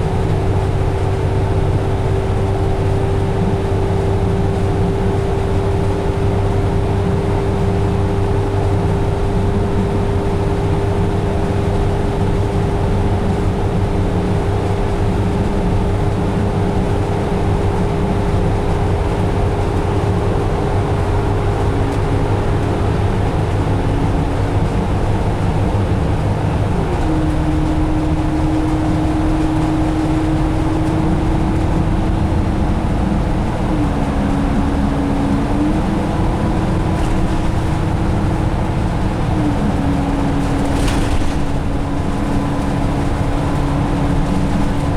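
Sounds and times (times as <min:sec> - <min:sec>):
bus diesel engine drone with whine: 0:00.0 - 0:44.9.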